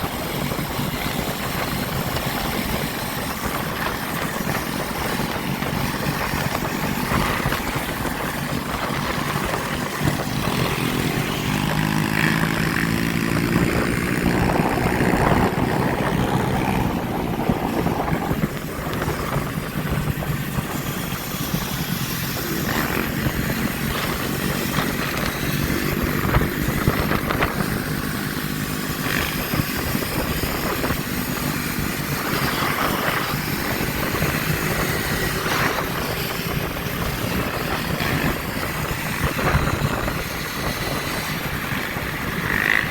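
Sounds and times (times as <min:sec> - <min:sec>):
motorbike engine revving: 0:00.0 - 0:42.9
motorbike engines running: 0:00.0 - 0:42.9
steady rushing noise: 0:00.0 - 0:42.9.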